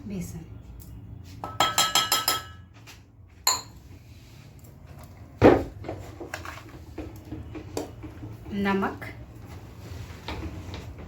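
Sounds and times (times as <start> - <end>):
dishes and utensils clinking: 1.4 - 2.8, 3.4 - 3.9.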